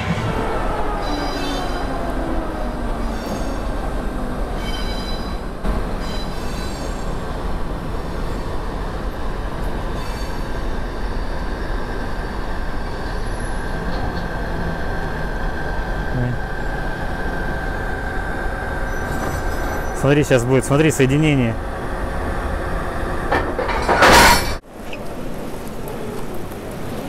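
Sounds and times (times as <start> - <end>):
train rumbling on rails: 0.0 - 27.0
metallic wheel squeals: 3.0 - 3.8, 4.6 - 5.4, 6.0 - 7.1, 18.8 - 20.0.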